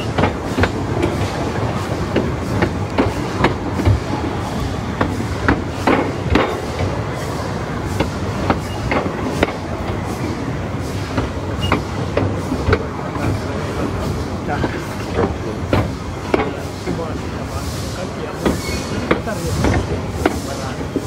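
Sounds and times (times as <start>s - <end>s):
wheels clicking over rail joints: 0.0s - 7.1s, 8.0s - 10.0s
rail car rattling: 0.0s - 21.0s
train rumbling on track: 0.0s - 21.0s.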